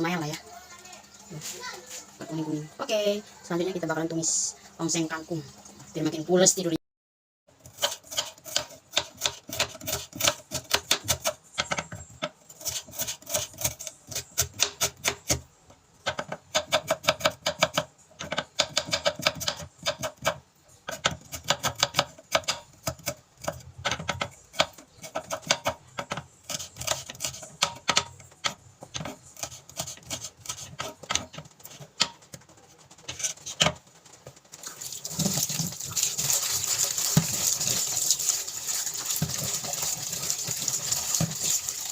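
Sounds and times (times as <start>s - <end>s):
knife chopping on cutting board: 7.8s - 12.0s, 12.6s - 15.4s, 16.1s - 32.3s.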